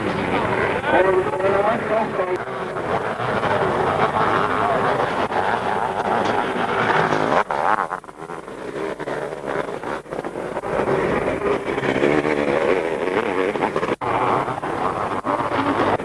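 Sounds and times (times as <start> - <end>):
motocross motorcycle engines revving: 0.0 - 16.0.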